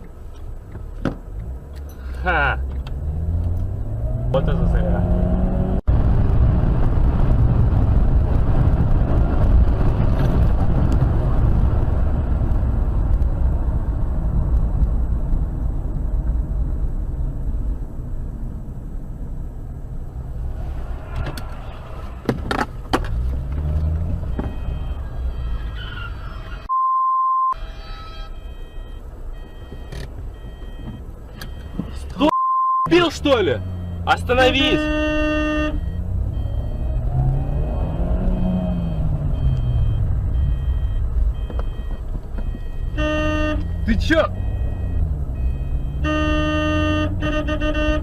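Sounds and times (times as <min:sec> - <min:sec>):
car road noise and engine rumble: 0:00.0 - 0:48.0
censor bleep: 0:26.7 - 0:47.0.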